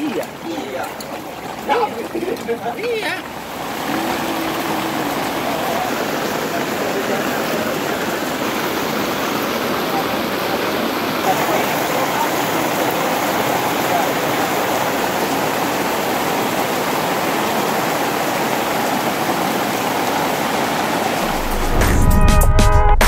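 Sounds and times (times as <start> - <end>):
heavy rain pouring: 0.0 - 23.0
electronic music with heavy bass: 21.2 - 23.0.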